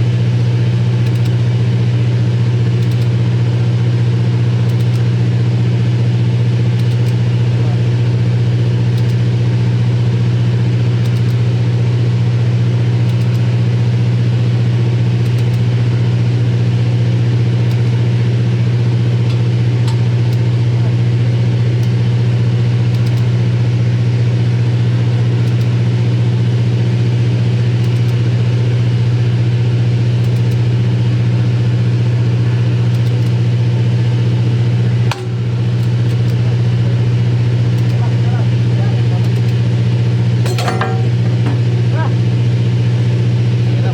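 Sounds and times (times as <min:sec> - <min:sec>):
machine humming: 0:34.3 - 0:43.9.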